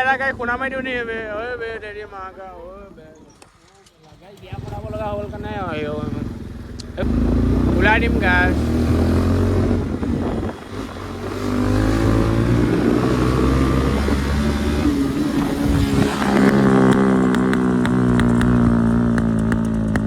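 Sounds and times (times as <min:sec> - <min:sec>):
exhaust pops and crackles: 0:03.4 - 0:08.9, 0:13.6 - 0:20.0
motorcycle engine revving: 0:04.1 - 0:20.0.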